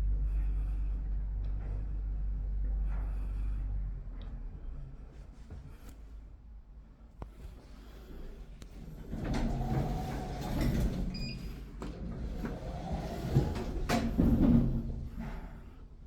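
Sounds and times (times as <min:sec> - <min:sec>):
elevator doors sliding: 0:08.3 - 0:16.0.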